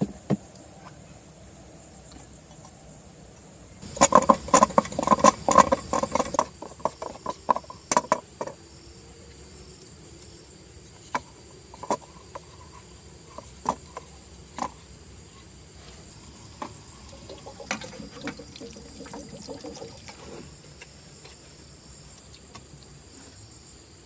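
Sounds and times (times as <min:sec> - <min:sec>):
hard objects clattering knocks: 0:03.8 - 0:08.6.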